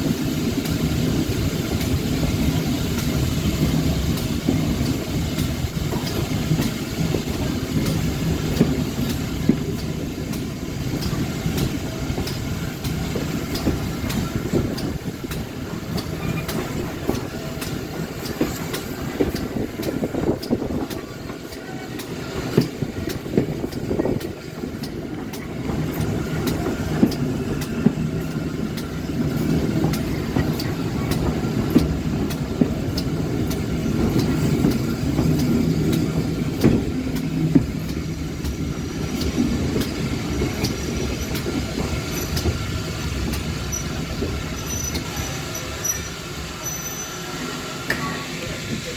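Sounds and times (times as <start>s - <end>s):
train wheels rumbling: 0.0s - 48.9s
wheels clicking over rail joints: 0.6s - 47.1s
wheel or brake squeals: 43.6s - 44.0s, 44.6s - 47.3s.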